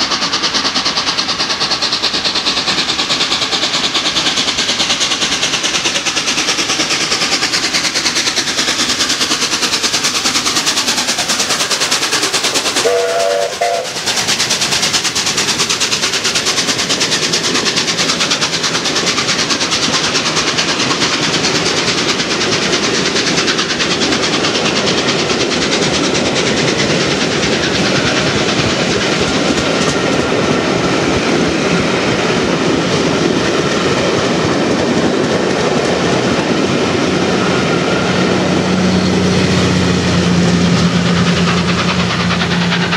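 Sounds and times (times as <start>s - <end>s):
steam train passing at speed: 0.0s - 42.9s
train chord whistle: 12.8s - 14.1s.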